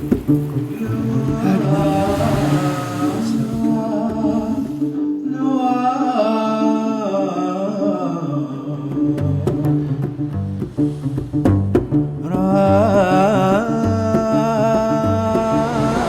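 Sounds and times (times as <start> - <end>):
plucked bass notes: 0.0 - 5.0, 8.8 - 16.0
man singing slow melody: 0.7 - 9.9, 12.2 - 16.0.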